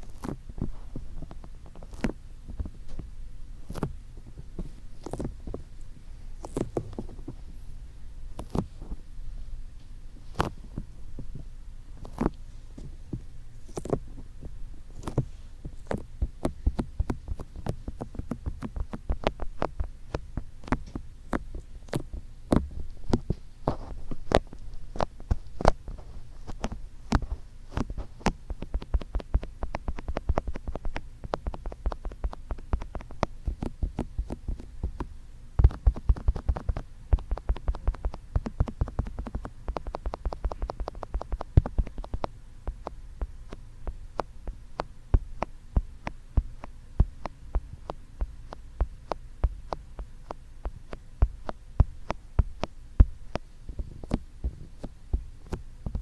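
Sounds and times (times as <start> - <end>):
fingertips tapping on microphone: 10.3 - 56.0.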